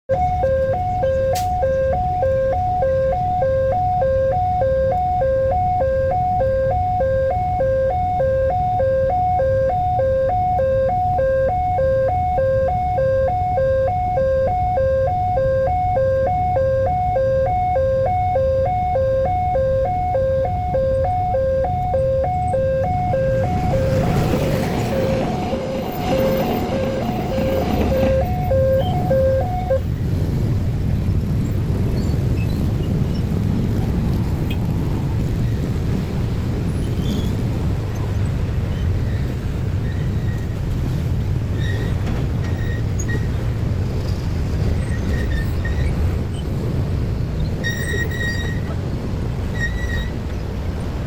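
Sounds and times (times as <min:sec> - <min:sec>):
two-tone crossing alarm: 0:00.1 - 0:29.9
low traffic rumble: 0:00.1 - 0:51.0
train approaching: 0:00.1 - 0:51.0.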